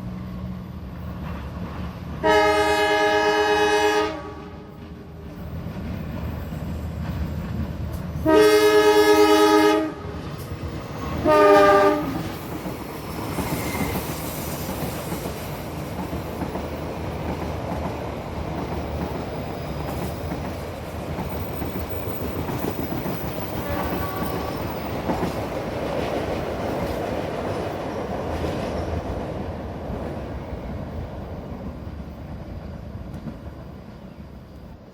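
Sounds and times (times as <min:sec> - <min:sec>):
train rumbling on rails: 0:00.0 - 0:34.9
diesel locomotive horn: 0:02.2 - 0:04.8, 0:08.2 - 0:10.2, 0:11.2 - 0:12.3, 0:23.5 - 0:24.8.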